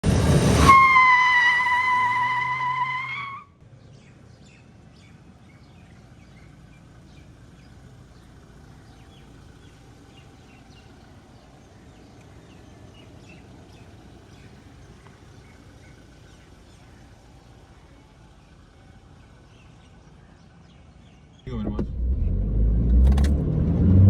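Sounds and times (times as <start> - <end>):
small birds chirping: 3.6 - 21.6
low background rumble: 3.6 - 24.0.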